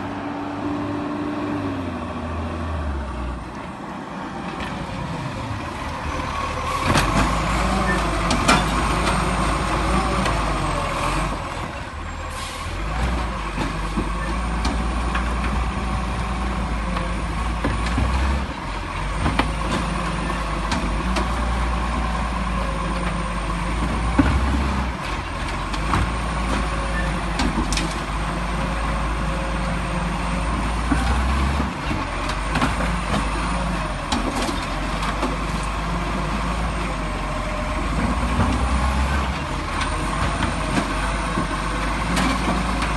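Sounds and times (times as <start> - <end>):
garbage truck engine running: 1.6 - 42.9.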